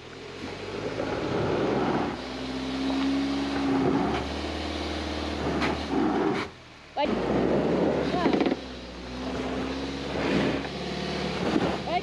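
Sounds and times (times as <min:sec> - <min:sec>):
car engine revving under load: 0:00.0 - 0:12.0.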